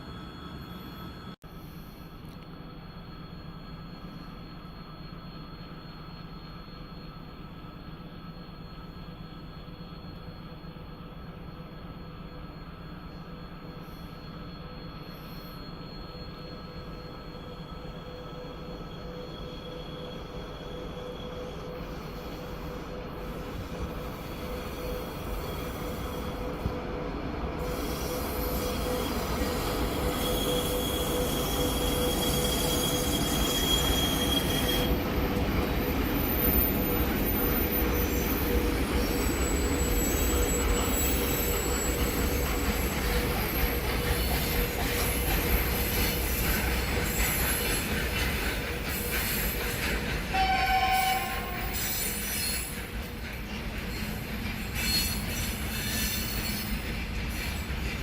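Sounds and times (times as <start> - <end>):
train rumbling past on rails: 0.0 - 58.0
high-pitched wheel squeal: 13.4 - 26.7, 27.6 - 53.2, 53.8 - 58.0.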